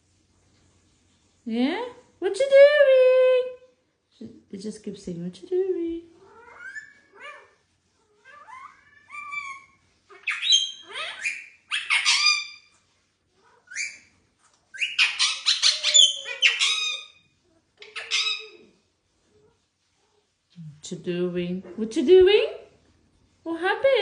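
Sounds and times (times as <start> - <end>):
parakeet whistles and harsh squawks: 6.2 - 12.8, 13.4 - 18.8.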